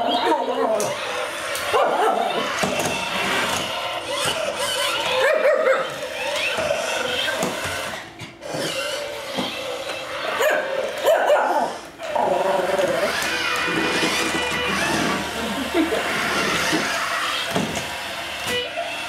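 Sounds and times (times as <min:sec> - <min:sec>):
small dog barking and whining: 0:01.7 - 0:02.6, 0:04.2 - 0:06.0, 0:10.3 - 0:11.8.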